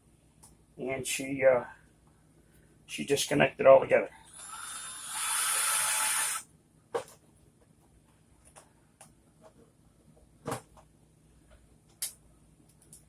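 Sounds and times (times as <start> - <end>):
hissy noise burst: 4.4 - 6.4.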